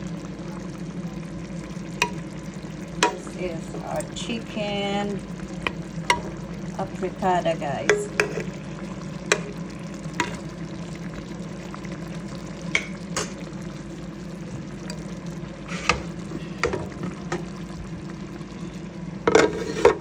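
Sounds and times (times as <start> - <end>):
food sizzling in a pan: 0.0 - 20.0
utensil clicking against pan: 3.0 - 3.4, 9.3 - 9.5.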